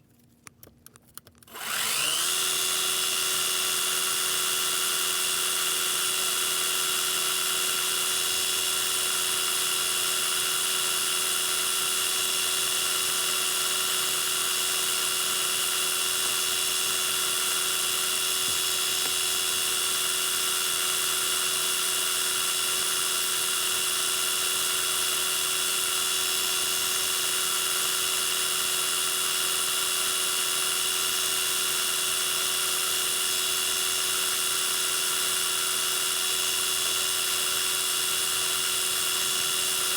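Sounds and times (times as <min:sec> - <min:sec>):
metal lathe whining: 0:01.5 - 0:27.4, 0:35.0 - 0:39.9.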